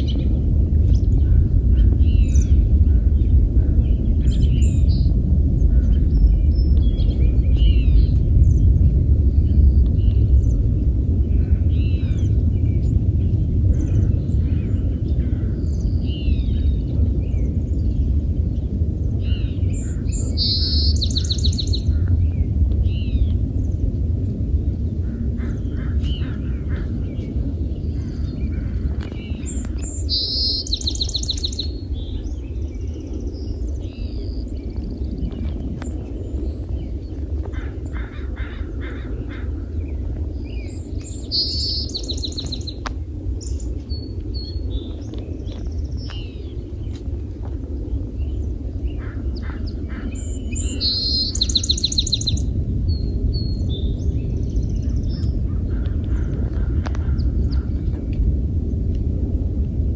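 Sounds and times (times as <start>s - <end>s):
birds calling: 0.0s - 23.9s, 24.5s - 58.1s
songbirds chirping: 0.0s - 59.9s
steady low rumble: 0.0s - 59.9s
rapid bird trill: 49.0s - 52.5s.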